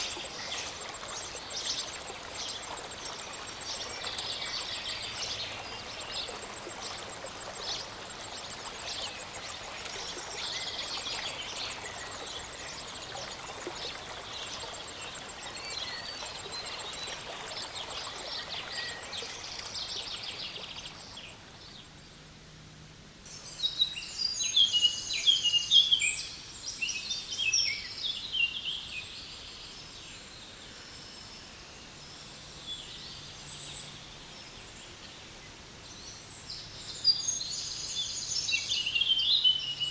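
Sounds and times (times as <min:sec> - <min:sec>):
rushing mountain stream: 0:00.0 - 0:21.4.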